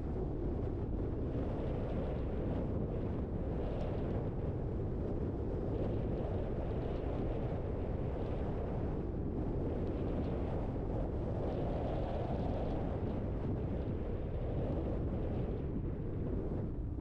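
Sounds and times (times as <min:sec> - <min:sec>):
car road and wind noise: 0:00.0 - 0:17.0.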